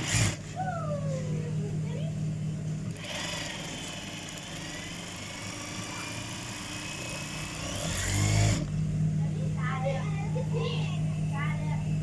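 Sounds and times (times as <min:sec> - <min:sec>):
sewing machine motor whining: 0:00.0 - 0:00.5, 0:02.9 - 0:08.7.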